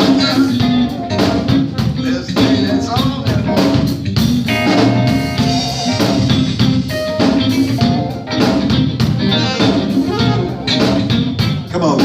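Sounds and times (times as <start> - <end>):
drum kit beat: 0.0 - 12.0
gospel band playing: 0.0 - 12.0.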